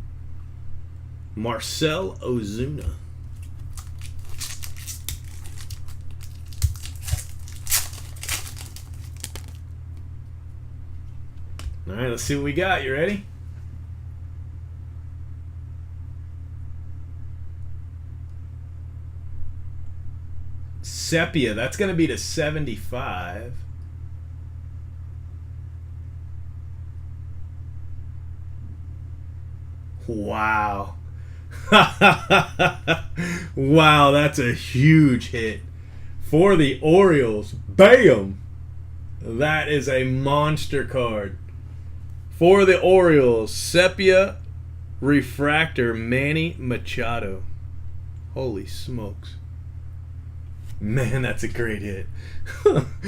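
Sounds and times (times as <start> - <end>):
steady low hum: 0.0 - 53.0
foil wrapper crinkling and tearing: 3.2 - 9.7.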